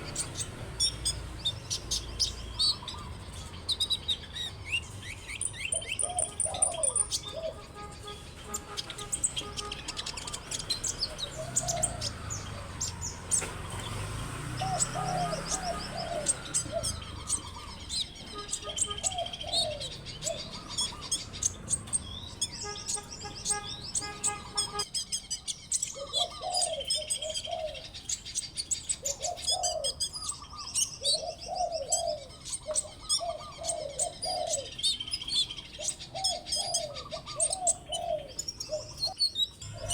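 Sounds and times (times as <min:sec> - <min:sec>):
small birds chirping and twittering: 0:00.0 - 0:39.9
low cooing: 0:14.0 - 0:17.8, 0:36.1 - 0:39.9.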